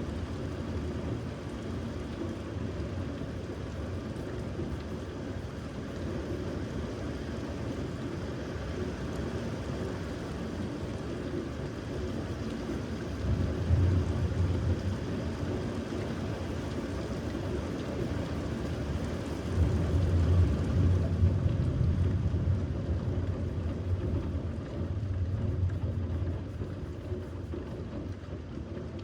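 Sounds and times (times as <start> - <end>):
steady rain: 0.0 - 29.0
low rumble of thunder: 13.0 - 28.0.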